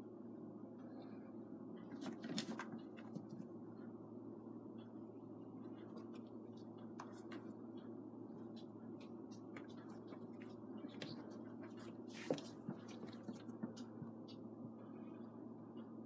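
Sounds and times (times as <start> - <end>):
low room hum: 0.0 - 16.0
kittens clicking and scratching: 1.8 - 3.5, 5.8 - 14.5.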